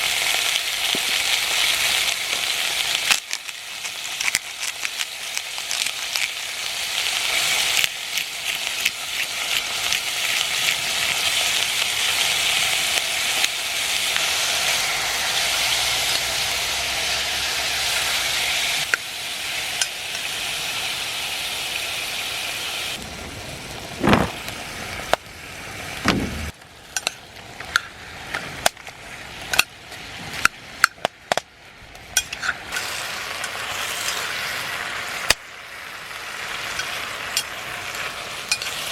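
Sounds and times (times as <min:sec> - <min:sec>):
food sizzling in cookware: 0:00.0 - 0:23.0, 0:32.0 - 0:38.9.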